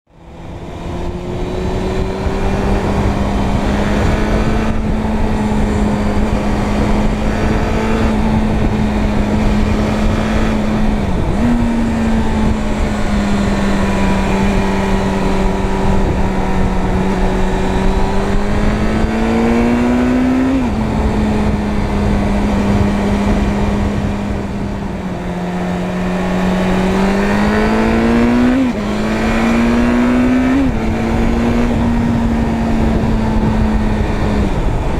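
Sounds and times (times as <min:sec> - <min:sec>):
motorcycle engine running: 0:00.1 - 0:34.9
wind and road noise: 0:00.1 - 0:34.9.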